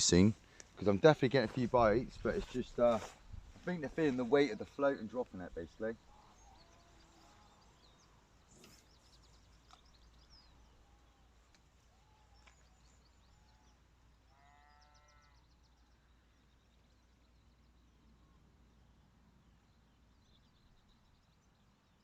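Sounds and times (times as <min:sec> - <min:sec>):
faint bird chirps: 0:05.8 - 0:22.0
distant animal call: 0:06.0 - 0:08.9, 0:10.5 - 0:15.9
faint ticks: 0:11.4 - 0:11.8.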